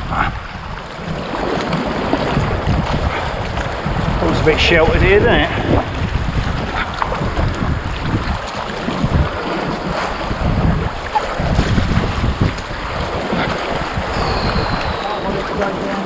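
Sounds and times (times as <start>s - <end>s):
sea waves around rocks: 0.0s - 16.0s
wind buffeting microphone: 0.0s - 16.0s.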